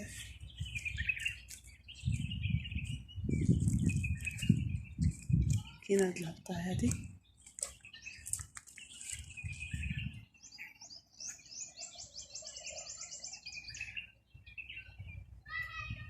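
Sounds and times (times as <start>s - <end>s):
small songbirds chirping: 0.0s - 16.0s.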